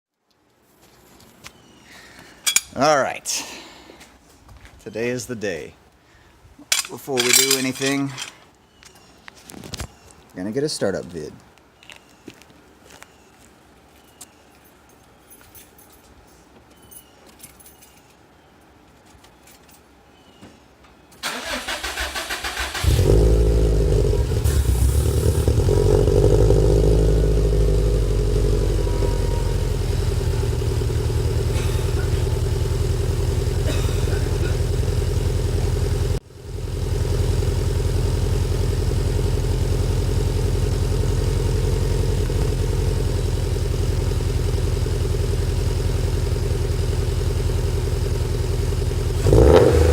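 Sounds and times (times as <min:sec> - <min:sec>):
car engine starting and idling: 0:21.2 - 0:49.9.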